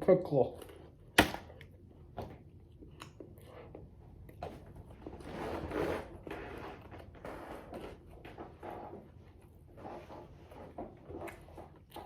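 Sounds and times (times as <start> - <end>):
chewing food: 0.5 - 4.6, 11.0 - 12.0.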